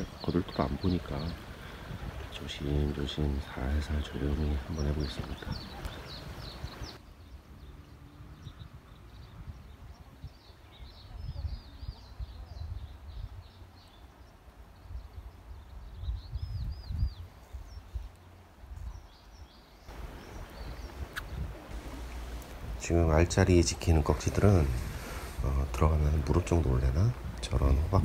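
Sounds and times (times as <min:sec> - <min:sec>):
small birds chirping: 0:00.0 - 0:28.0
low uneven rumble: 0:19.9 - 0:28.0.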